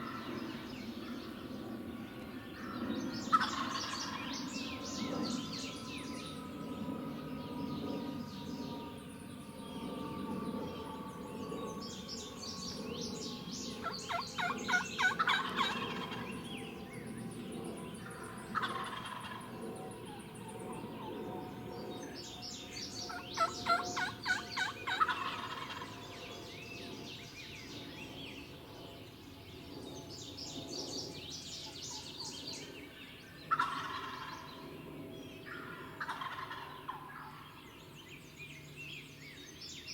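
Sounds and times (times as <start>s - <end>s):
songbirds chirping: 0.0s - 39.9s
turkeys gobbling: 3.3s - 4.2s, 14.1s - 16.3s, 18.5s - 19.4s, 23.1s - 25.9s, 33.5s - 34.4s, 35.6s - 37.4s.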